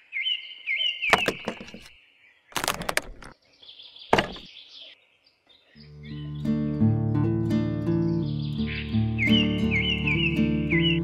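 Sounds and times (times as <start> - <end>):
birds chirping: 0.0 - 11.0
music: 5.8 - 11.0.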